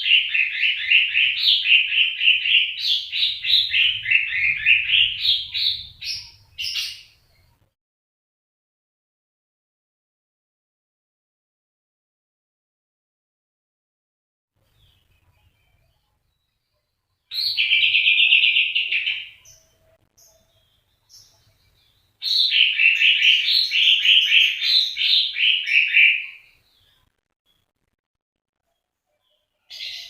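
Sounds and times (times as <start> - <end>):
bird chirping: 0.0 - 7.7, 14.6 - 27.7, 28.6 - 30.0.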